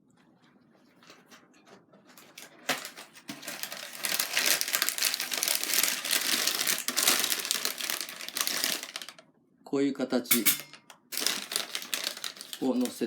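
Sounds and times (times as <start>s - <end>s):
packaging crackling and clicking: 2.0s - 9.2s, 10.6s - 13.0s.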